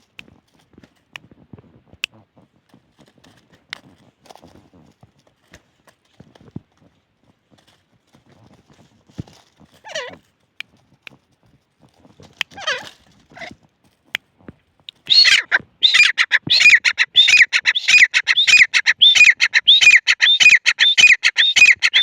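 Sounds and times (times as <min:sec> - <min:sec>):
francolin calling: 0:14.9 - 0:22.0.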